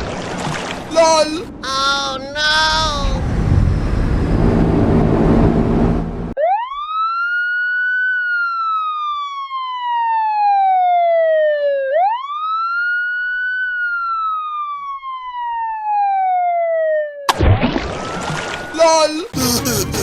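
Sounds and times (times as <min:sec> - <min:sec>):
police siren wailing: 0:06.4 - 0:17.2, 0:17.9 - 0:19.8.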